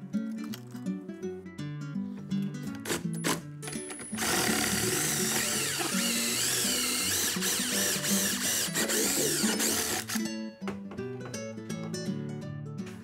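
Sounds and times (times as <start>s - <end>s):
acoustic guitar music: 0.0s - 13.0s
drill grinding through metal: 2.9s - 10.2s.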